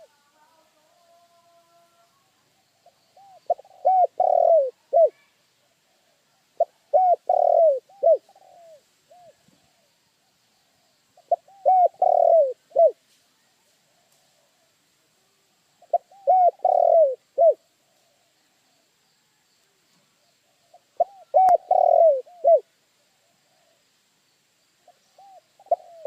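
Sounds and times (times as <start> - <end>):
dove cooing: 0.0 - 0.4, 2.8 - 9.9, 11.2 - 13.0, 15.8 - 18.3, 20.4 - 23.8, 24.9 - 26.0.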